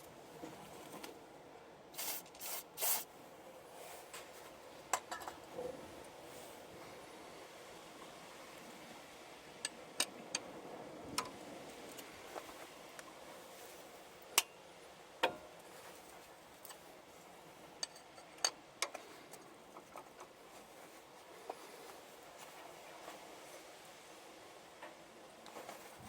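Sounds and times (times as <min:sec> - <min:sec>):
tools and metal parts clinking: 0:17.8 - 0:19.0.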